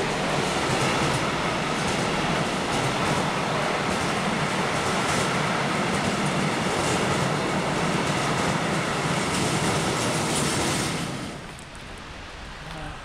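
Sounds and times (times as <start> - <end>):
train passing on rails: 0.0 - 13.0.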